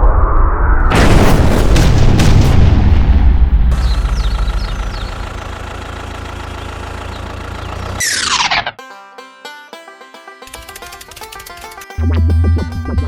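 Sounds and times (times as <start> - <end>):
low rumble: 0.0 - 6.4
loud boom with sharp cracks: 0.4 - 5.6.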